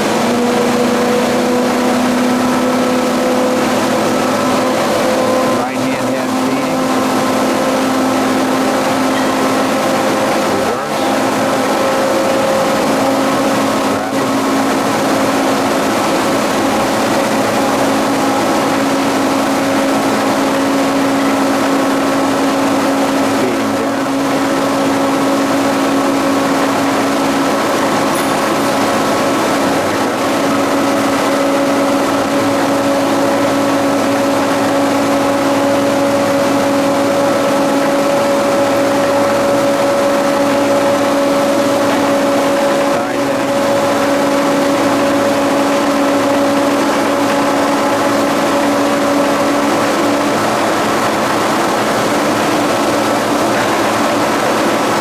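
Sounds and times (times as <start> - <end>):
machine hum and whir: 0.0 - 55.0.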